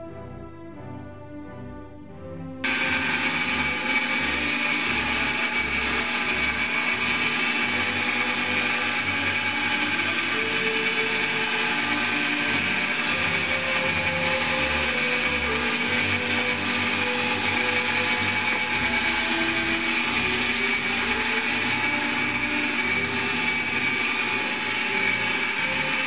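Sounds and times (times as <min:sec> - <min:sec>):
beam engine running: 0:02.6 - 0:26.0
steady humming tones: 0:02.6 - 0:26.0
faint high whine: 0:02.7 - 0:26.0.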